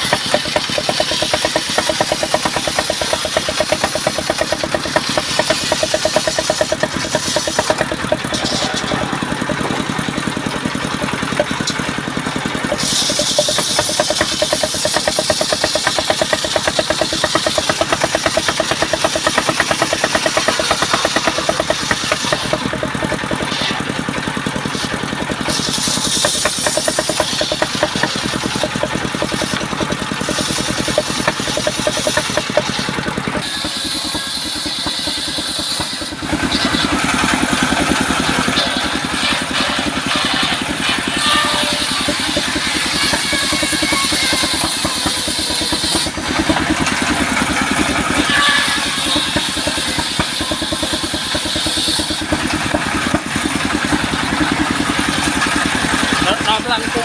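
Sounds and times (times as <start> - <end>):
sawmill machinery pulsing: 0.0 - 57.0.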